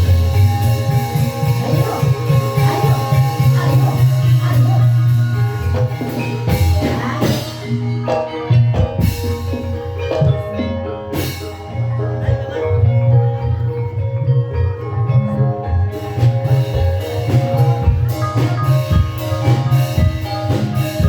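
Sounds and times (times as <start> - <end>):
steady drum beat: 0.0 - 10.6, 15.9 - 21.0
mallet-struck tuned percussion: 0.0 - 21.0.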